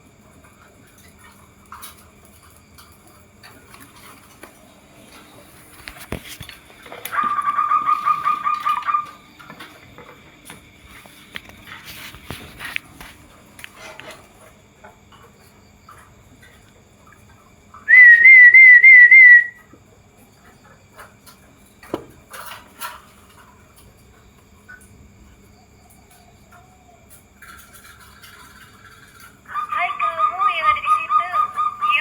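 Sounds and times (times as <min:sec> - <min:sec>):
dove whistled call: 0:06.9 - 0:09.6, 0:17.8 - 0:19.7, 0:29.5 - 0:32.0.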